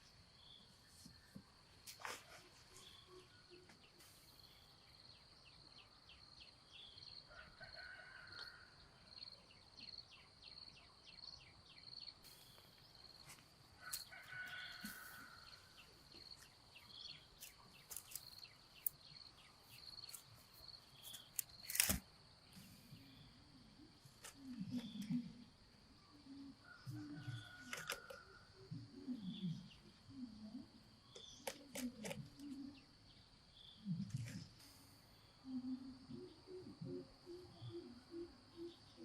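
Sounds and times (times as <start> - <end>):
insects chirring: 9.1 - 39.0.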